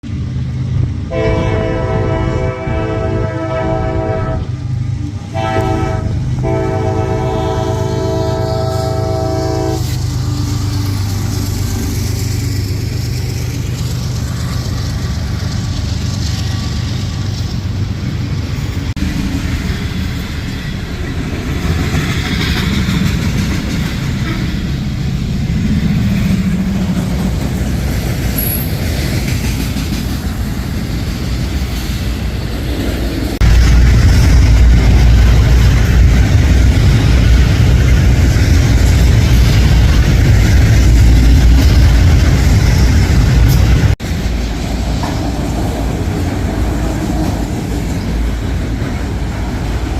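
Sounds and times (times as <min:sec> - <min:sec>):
freight train passing rumble: 0:00.0 - 0:49.9
locomotive air horn chord: 0:01.1 - 0:04.5, 0:05.3 - 0:10.0
wheels on rails: 0:07.0 - 0:49.9.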